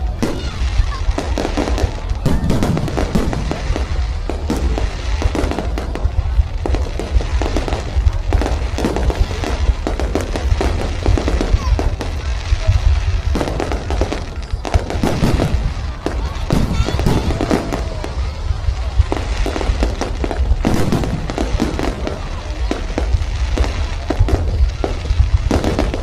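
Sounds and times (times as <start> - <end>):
fireworks crackling and popping: 0.0 - 26.0.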